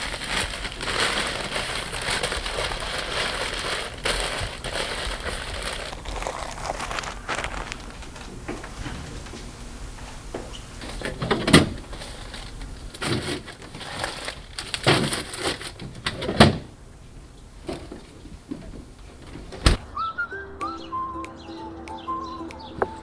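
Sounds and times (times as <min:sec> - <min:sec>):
rustling and scraping handling noise: 0:00.0 - 0:09.6, 0:10.8 - 0:16.4.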